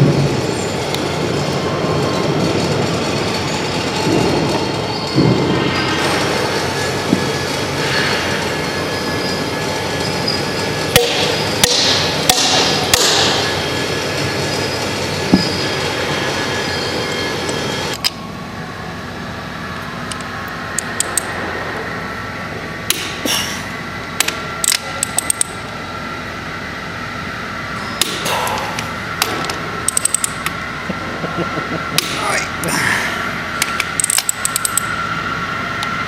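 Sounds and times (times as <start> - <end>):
loud rushing noise: 0.0 - 18.4, 19.0 - 24.6
workshop hum: 0.0 - 36.0.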